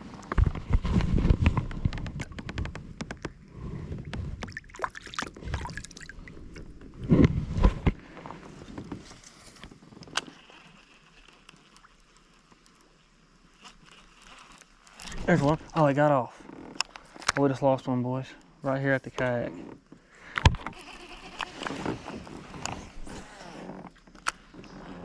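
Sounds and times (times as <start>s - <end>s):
kayak and gear thumping: 0.2s - 8.2s.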